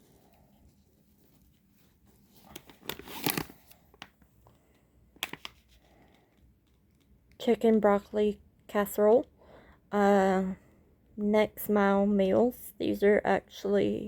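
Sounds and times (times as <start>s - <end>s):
packaging crinkling and rustling: 0.0s - 7.2s.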